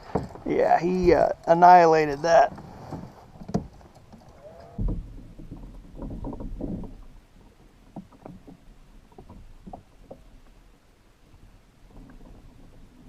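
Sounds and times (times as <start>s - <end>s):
water sloshing around kayak: 0.0s - 13.0s
knock against hull: 4.8s - 7.0s.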